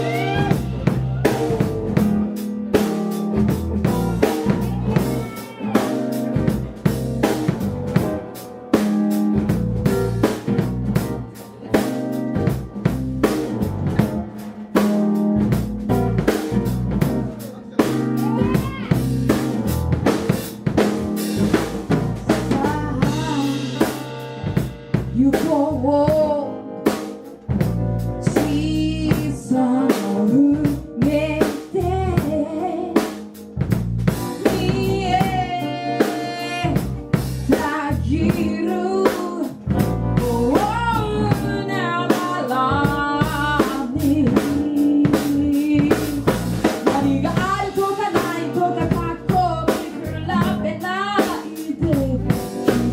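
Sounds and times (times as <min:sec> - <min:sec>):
person singing: 0:00.0 - 0:02.3, 0:03.8 - 0:06.5, 0:22.3 - 0:24.4, 0:25.1 - 0:26.7, 0:28.2 - 0:33.3, 0:34.3 - 0:52.9
bass: 0:00.0 - 0:52.9
drum kit beat: 0:00.0 - 0:52.9.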